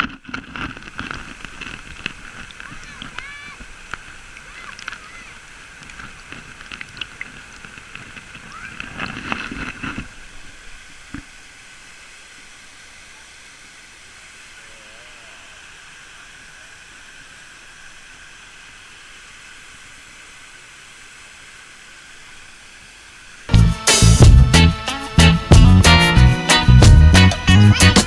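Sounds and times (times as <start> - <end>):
waterfall rushing: 1.3 - 28.0.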